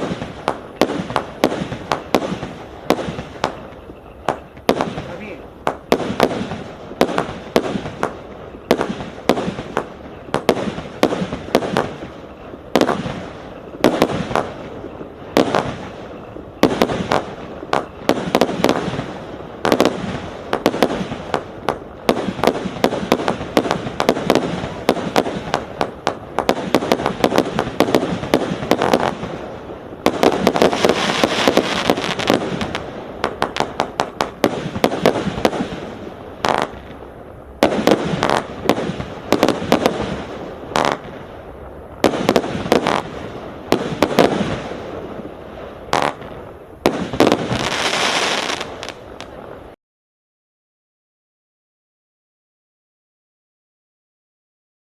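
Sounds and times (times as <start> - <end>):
fireworks bangs: 0.0 - 49.8
fireworks crackling: 0.0 - 49.8.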